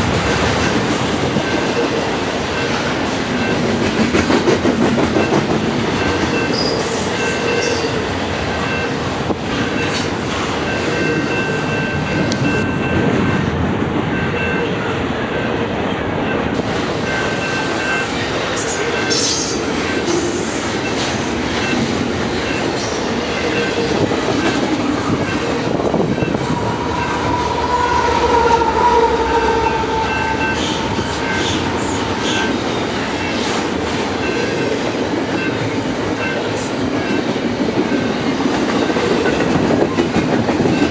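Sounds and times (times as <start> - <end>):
train rumbling over rails: 0.0 - 40.9
high wheel squeals: 22.8 - 33.8.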